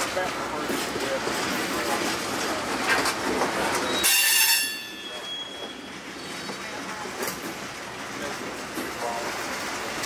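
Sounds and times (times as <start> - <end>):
freight train wheels knocking: 0.0 - 10.0
high wheel squeal: 3.8 - 6.5.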